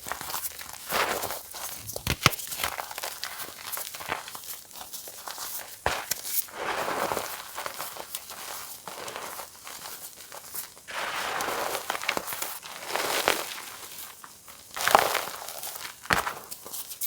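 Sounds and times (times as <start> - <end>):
chalk being crushed: 1.8 - 2.5.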